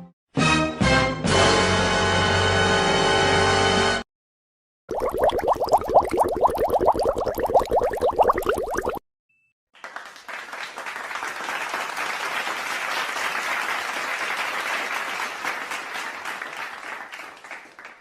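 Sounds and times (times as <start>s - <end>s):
crowd applause: 9.8s - 18.0s.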